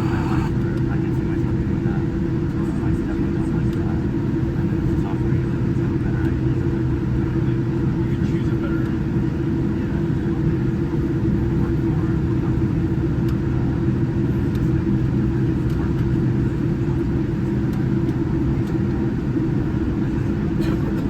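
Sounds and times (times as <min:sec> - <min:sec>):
constant hum: 0:00.0 - 0:01.0.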